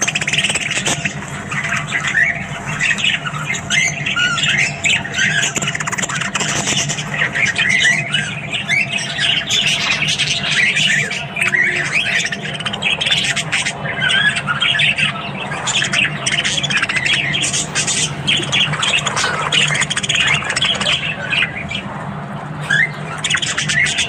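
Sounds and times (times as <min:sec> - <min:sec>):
budgerigars chattering and squawking: 0:00.0 - 0:24.0
steady low hum: 0:00.0 - 0:24.0.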